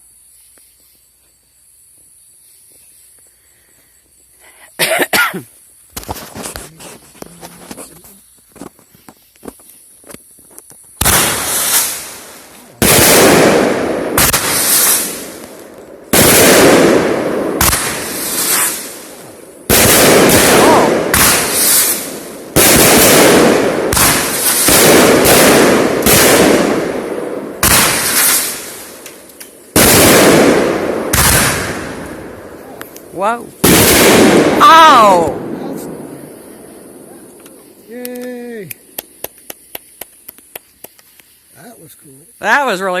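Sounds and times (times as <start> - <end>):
firework bangs: 10.9 - 41.1.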